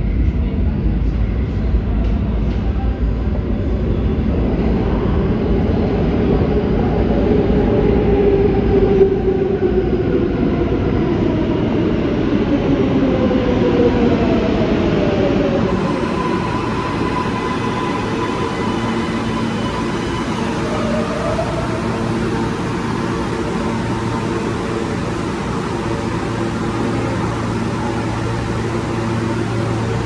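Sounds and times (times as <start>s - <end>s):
subway train rumbling: 0.0s - 30.0s
train motors whining: 16.3s - 30.0s.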